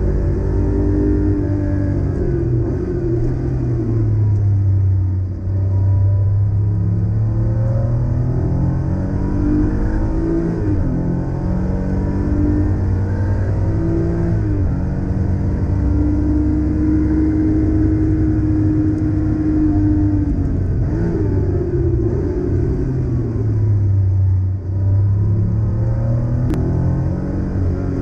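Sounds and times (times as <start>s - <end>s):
car engine accelerating from cabin: 0.0s - 28.0s.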